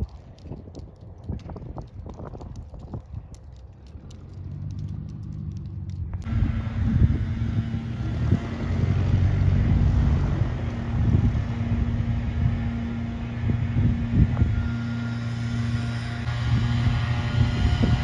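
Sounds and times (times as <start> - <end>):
airplane piston engine running: 6.2 - 18.0
rushing noise: 6.3 - 18.0.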